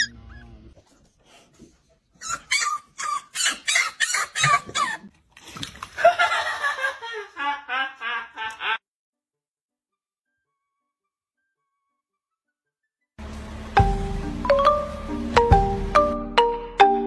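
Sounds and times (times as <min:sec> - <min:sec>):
dog yelping: 0:00.0 - 0:00.8, 0:02.2 - 0:05.1.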